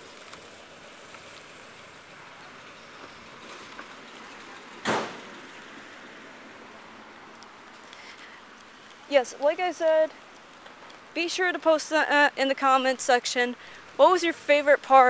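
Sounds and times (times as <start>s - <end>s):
car passing: 0.0s - 11.0s
street traffic hiss: 0.0s - 15.0s
loud thump: 4.8s - 5.3s.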